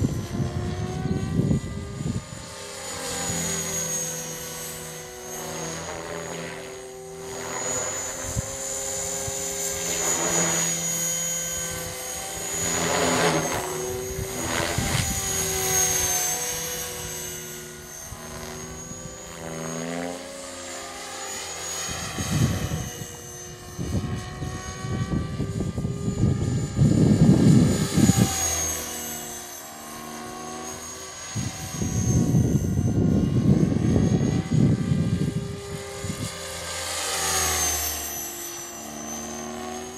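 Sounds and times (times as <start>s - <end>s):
wind gusts on microphone: 0.0s - 3.3s, 11.5s - 19.6s, 21.8s - 28.6s, 31.3s - 36.4s
rc helicopter rotor whine: 0.0s - 39.9s.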